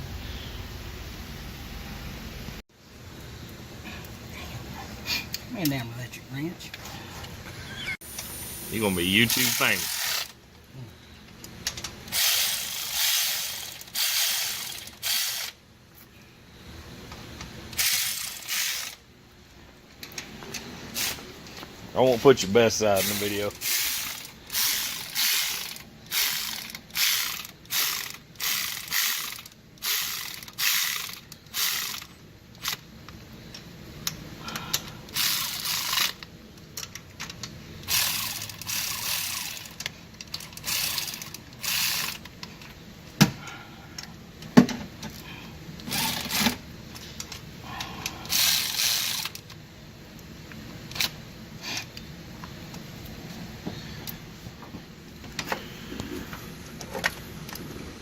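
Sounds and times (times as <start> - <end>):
sharp ratchet clicks: 8.2 - 10.4, 11.6 - 15.6, 17.7 - 19.0, 23.0 - 32.9, 34.1 - 42.4, 45.8 - 46.6, 48.3 - 49.6
socket ratchet pawl rattling: 9.1 - 10.4, 11.7 - 15.6, 17.8 - 19.0, 23.0 - 32.8, 35.1 - 42.4, 48.3 - 49.5.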